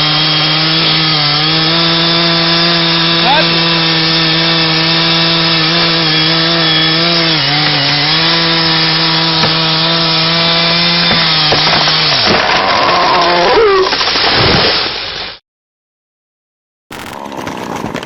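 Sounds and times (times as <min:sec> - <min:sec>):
chainsaw cutting at high revs: 0:00.0 - 0:13.4.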